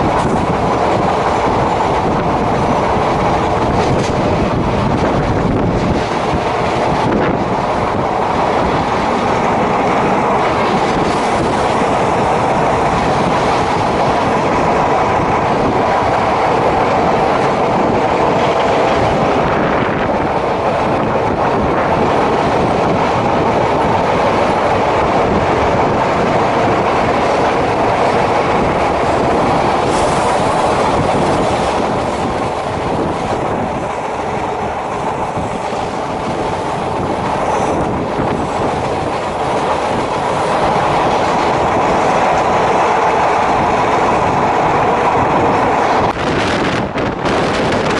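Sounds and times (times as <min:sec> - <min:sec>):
train wheels rumbling on rails: 0:00.0 - 0:47.9.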